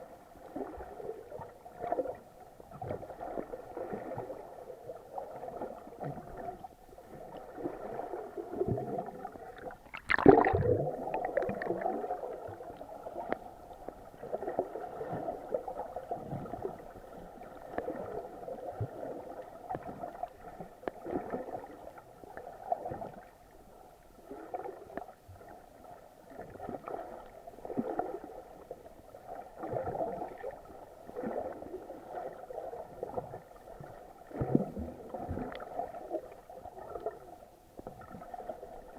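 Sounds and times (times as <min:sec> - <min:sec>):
muffled underwater sloshing: 0:00.0 - 0:38.9
water splash: 0:09.5 - 0:12.6.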